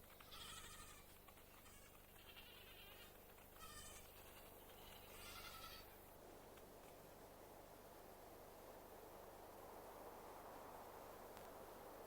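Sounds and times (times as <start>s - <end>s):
goats bleating: 0.2s - 5.9s.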